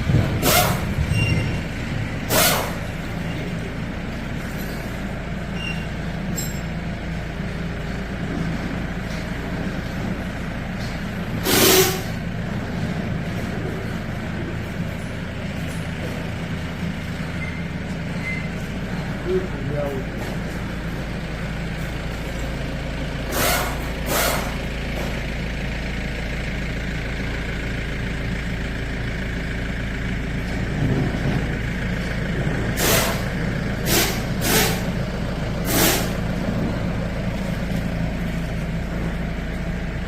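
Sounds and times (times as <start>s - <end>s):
diesel engine running: 0.0s - 40.0s
short hisses: 11.4s - 12.2s, 33.8s - 34.8s, 35.7s - 36.2s.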